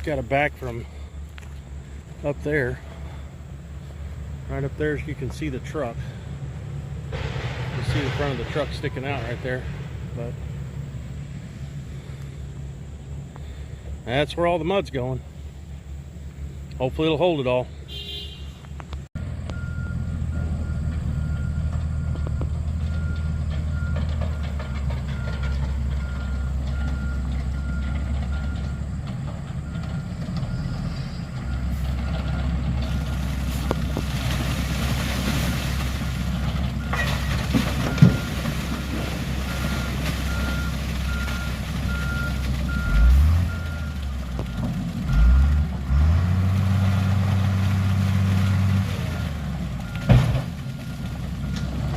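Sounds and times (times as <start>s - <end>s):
truck engine running: 0.0s - 51.9s
reversing alarm beeps: 19.5s - 28.8s, 39.5s - 45.4s
engine revving: 39.8s - 44.0s, 44.6s - 50.4s.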